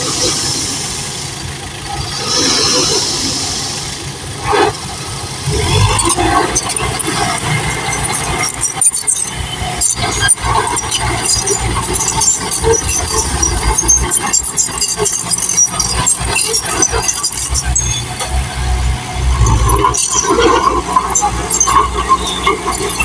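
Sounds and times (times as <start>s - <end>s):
clicks and clatters: 5.5s - 23.0s.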